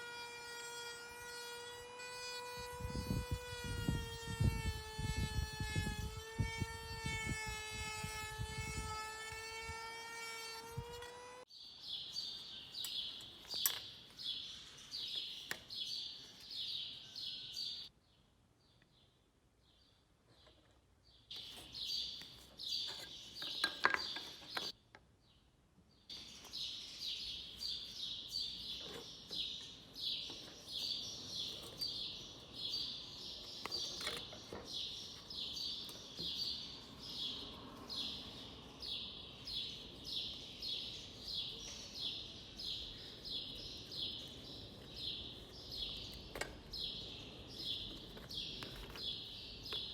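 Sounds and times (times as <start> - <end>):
small birds chirping: 10.6 - 49.9.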